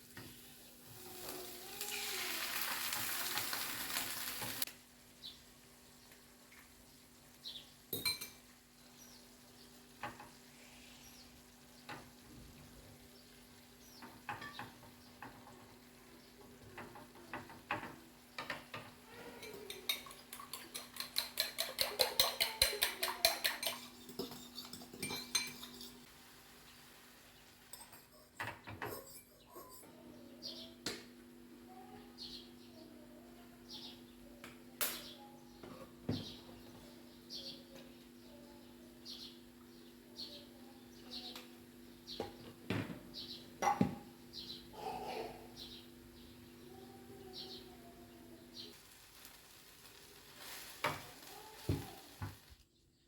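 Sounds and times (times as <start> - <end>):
utensils clinking against dishes: 16.7 - 26.1, 27.7 - 30.0
utensil stirring in a bowl: 19.3 - 26.1.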